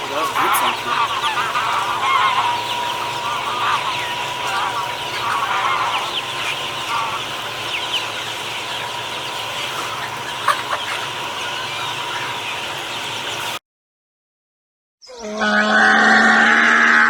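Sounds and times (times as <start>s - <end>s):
high falling peeps: 0.0s - 13.5s
chickens clucking: 0.0s - 13.6s.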